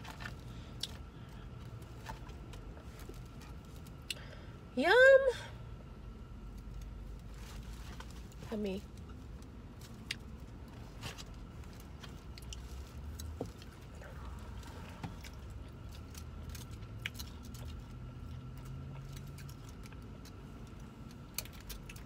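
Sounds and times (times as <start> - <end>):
low steady hum: 0.0 - 22.0
crunchy food chewing: 11.1 - 22.0.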